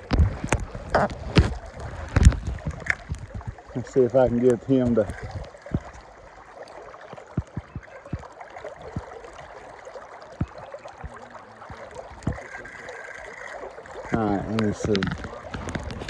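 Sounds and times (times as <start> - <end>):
dull low thumps: 0.0 - 6.2
river water gurgling: 0.0 - 16.0.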